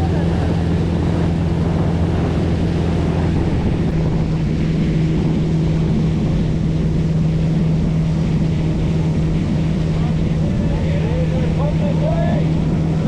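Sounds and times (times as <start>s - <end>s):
motorboat engine drone: 0.0s - 13.0s
water rushing: 0.0s - 13.0s
wind buffeting microphone: 0.0s - 13.0s.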